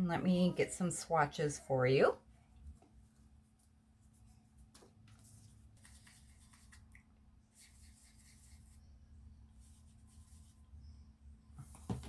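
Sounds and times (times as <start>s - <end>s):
faint room hum: 0.0s - 12.0s
light scratchy rubs: 2.6s - 6.9s, 7.5s - 9.0s, 9.6s - 11.0s.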